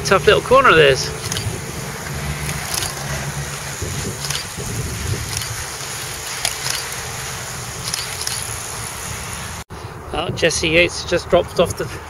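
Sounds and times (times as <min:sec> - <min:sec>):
wind buffeting microphone: 0:00.6 - 0:12.0.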